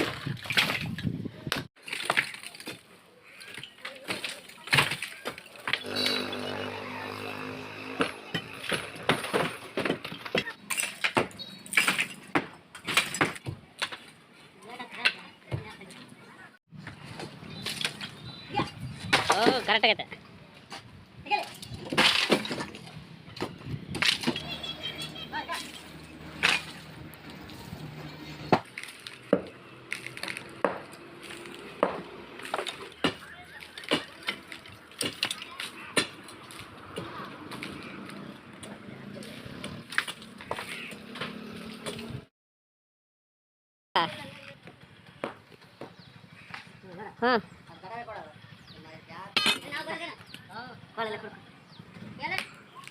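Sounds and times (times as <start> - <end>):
hand tools striking masonry: 3.6 - 14.0, 25.5 - 26.9, 28.5 - 36.2, 49.3 - 49.9.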